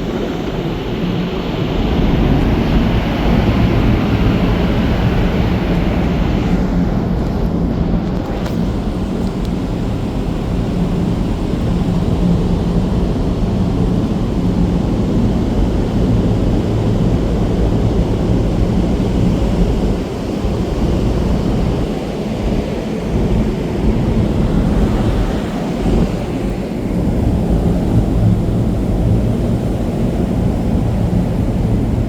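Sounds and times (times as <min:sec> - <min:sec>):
rough rumbling noise: 0:07.0 - 0:21.8, 0:23.1 - 0:32.0
ship engines humming: 0:08.3 - 0:32.0.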